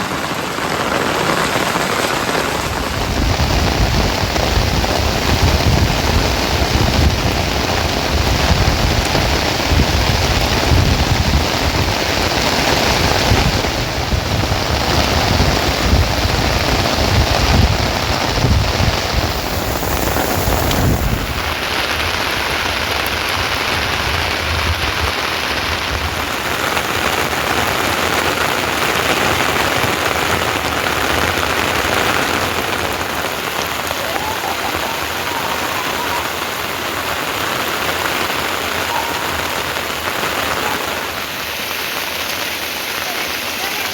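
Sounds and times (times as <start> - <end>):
heavy rain falling: 0.0 - 43.9
low rumble: 17.4 - 21.7.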